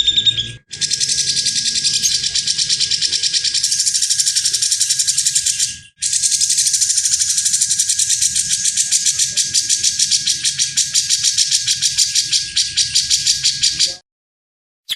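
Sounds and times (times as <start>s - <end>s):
songbird rasping trill: 0.0s - 14.0s.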